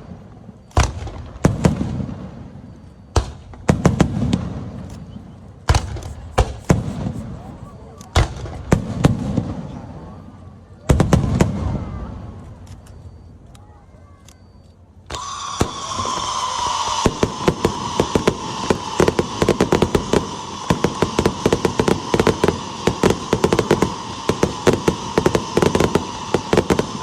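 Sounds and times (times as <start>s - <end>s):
firework crackling pops: 0.0s - 2.4s, 3.1s - 9.8s, 15.1s - 27.0s
firework whistling: 0.0s - 13.5s, 14.4s - 27.0s.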